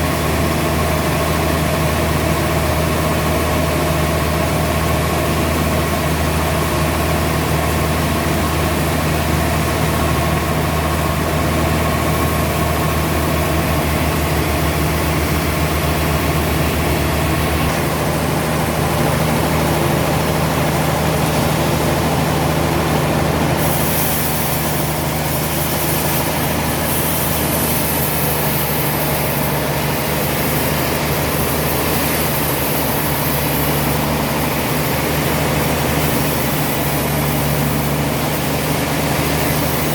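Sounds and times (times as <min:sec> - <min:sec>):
heavy machinery engine drone: 0:00.0 - 0:39.9
bright hiss: 0:08.6 - 0:39.9.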